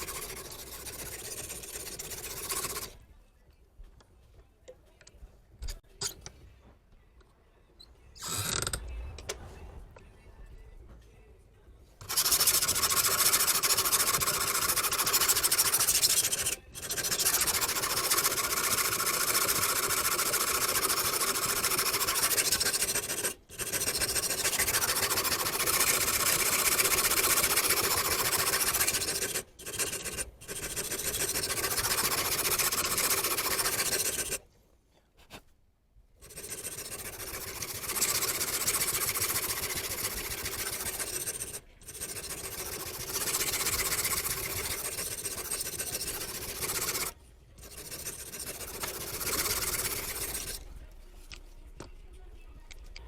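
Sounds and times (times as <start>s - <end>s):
knife grinding on sharpening stone: 12.0s - 34.4s, 36.2s - 50.6s.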